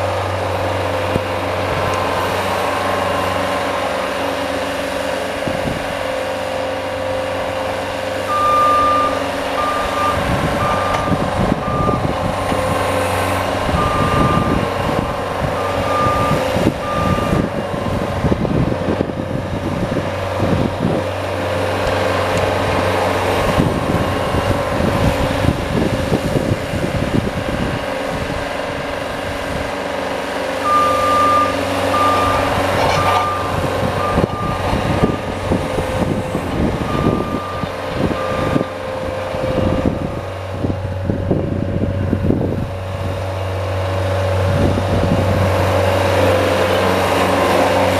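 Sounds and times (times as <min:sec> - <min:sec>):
vehicle engine running: 0:00.0 - 0:47.9
reversing alarm beeping: 0:08.2 - 0:18.1, 0:30.6 - 0:39.0
rough scraping noise: 0:32.5 - 0:33.5.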